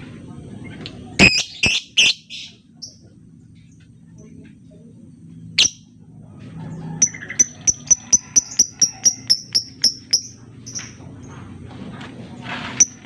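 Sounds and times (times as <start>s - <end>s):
bird chirping high and sharp: 1.2s - 3.0s, 5.6s - 5.8s.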